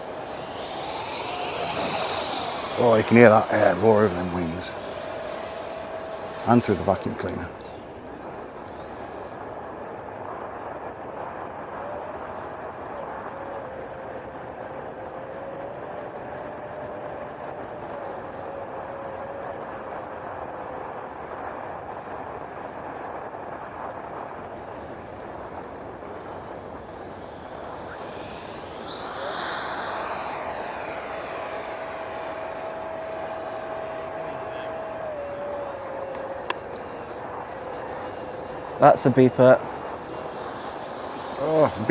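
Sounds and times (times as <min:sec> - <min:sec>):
electric ducted fan whine: 0:00.0 - 0:09.7, 0:24.5 - 0:41.9.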